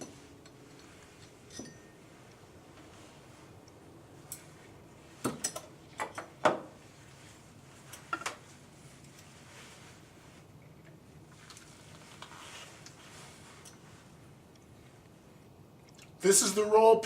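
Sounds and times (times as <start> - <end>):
metal taps and clinks: 0.0 - 2.0.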